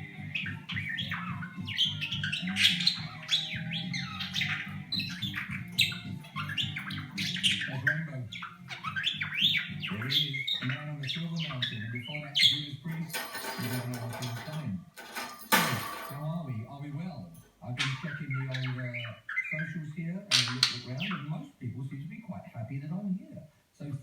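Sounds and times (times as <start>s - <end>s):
budgerigar chattering: 0.0s - 13.1s, 17.6s - 21.3s.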